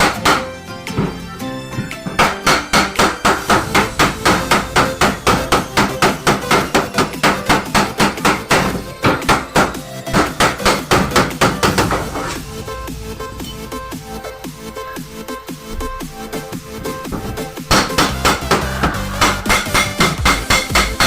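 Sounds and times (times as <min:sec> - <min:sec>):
hammer blows on car panel: 0:17.7 - 0:21.0.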